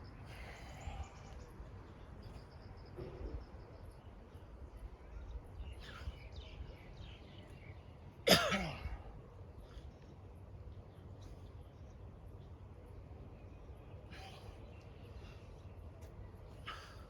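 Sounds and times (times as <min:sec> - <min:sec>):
faint bird chirps: 0:00.0 - 0:08.2
person coughing: 0:08.3 - 0:08.9.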